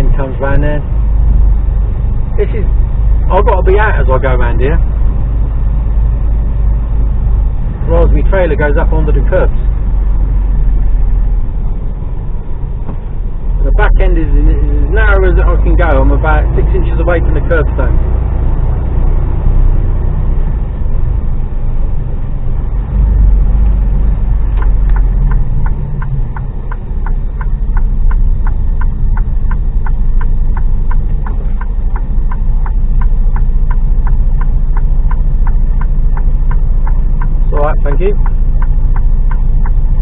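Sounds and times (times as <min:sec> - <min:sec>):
truck diesel engine running: 0:00.0 - 0:40.0
light ticking: 0:24.1 - 0:40.0.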